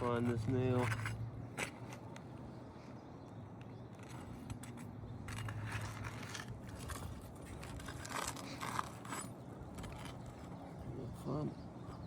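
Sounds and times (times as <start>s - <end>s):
hand tool scraping under shingles: 4.0s - 10.6s.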